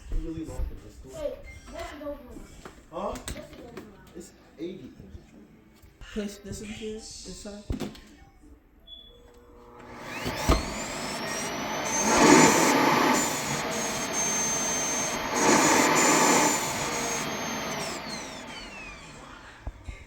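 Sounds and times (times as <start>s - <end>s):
suction motor whine: 9.7s - 20.0s.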